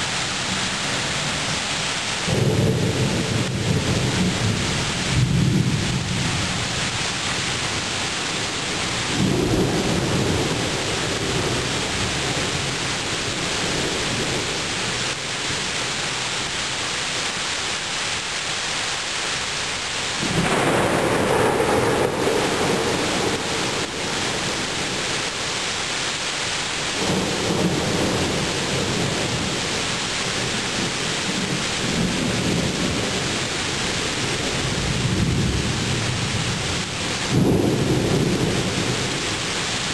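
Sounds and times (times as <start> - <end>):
rain hissing: 0.0 - 39.9
rolling thunder: 2.2 - 14.5, 20.2 - 25.6, 26.8 - 39.9.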